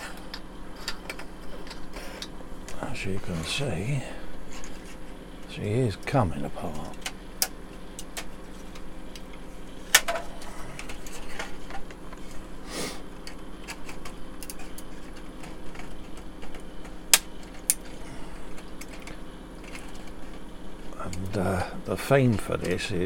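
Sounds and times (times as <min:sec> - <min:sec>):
faint hum: 0:00.0 - 0:23.0
plastic parts snapping apart: 0:09.9 - 0:10.2.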